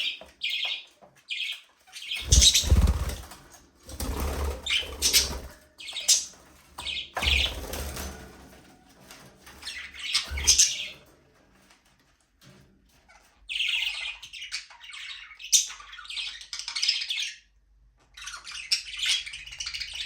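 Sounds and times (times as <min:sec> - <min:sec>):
budgerigars chirping and squawking: 0:00.0 - 0:08.0, 0:09.6 - 0:11.0, 0:13.0 - 0:20.0
wing flapping: 0:02.2 - 0:06.2.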